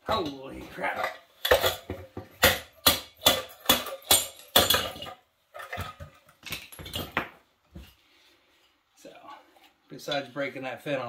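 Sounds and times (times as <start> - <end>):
metal knocks and clatter: 0.1 - 7.4.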